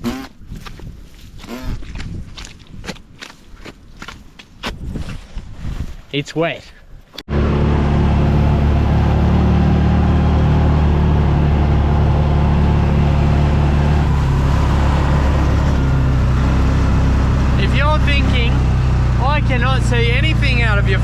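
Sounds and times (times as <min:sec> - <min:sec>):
vehicle engine droning: 0:07.2 - 0:21.0.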